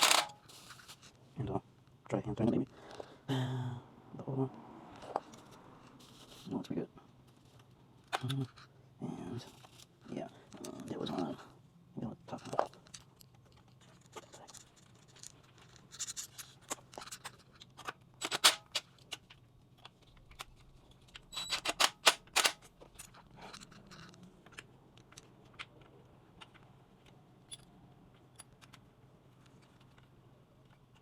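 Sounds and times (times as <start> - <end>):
hand tools clicking and knocking: 0.0 - 0.4, 18.2 - 18.8, 21.4 - 23.2.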